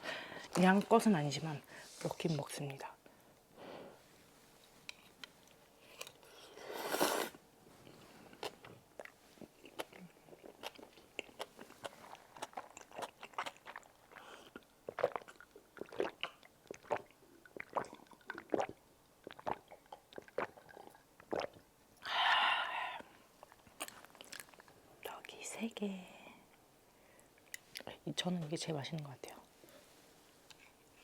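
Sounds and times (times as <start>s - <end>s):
wet chewing and mouth smacks: 8.3s - 21.6s, 23.4s - 24.8s.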